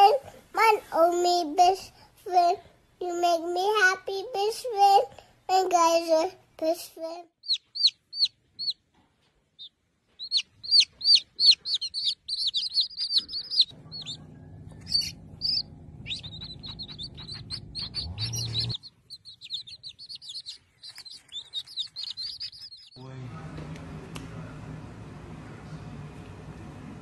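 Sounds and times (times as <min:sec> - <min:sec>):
baby chicks peeping: 0:07.4 - 0:08.8, 0:09.6 - 0:23.0
low steady hum: 0:13.6 - 0:18.8.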